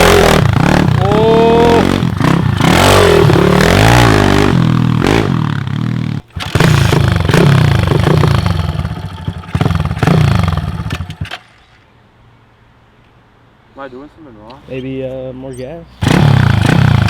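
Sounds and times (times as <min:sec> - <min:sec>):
pit bike engine revving: 0:00.0 - 0:11.7, 0:16.0 - 0:17.0.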